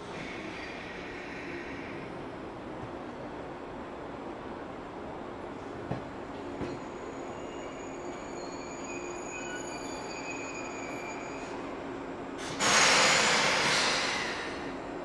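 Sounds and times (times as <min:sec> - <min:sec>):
train brake squeal: 0:06.6 - 0:11.7, 0:12.4 - 0:14.7
compressed air hiss: 0:12.4 - 0:14.7.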